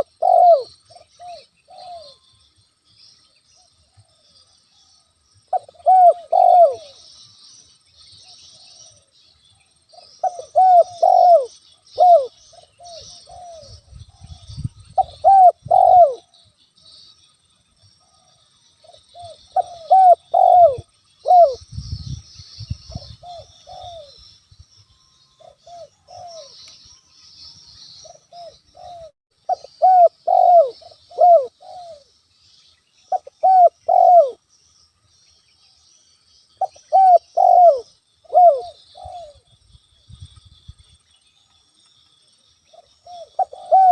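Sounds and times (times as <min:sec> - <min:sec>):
dove cooing: 0:00.0 - 0:02.2, 0:05.5 - 0:07.1, 0:09.9 - 0:16.5, 0:18.0 - 0:21.6, 0:22.9 - 0:24.2, 0:25.4 - 0:26.6, 0:28.0 - 0:32.1, 0:33.1 - 0:34.4, 0:36.6 - 0:39.5, 0:42.7 - 0:43.9.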